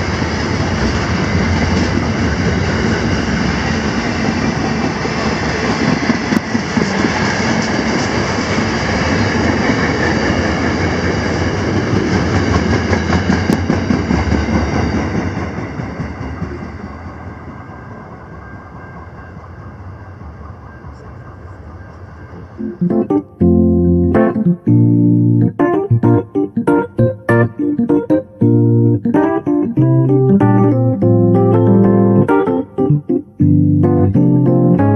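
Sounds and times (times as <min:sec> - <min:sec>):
freight train wheels rumbling on rail: 0:00.0 - 0:22.6.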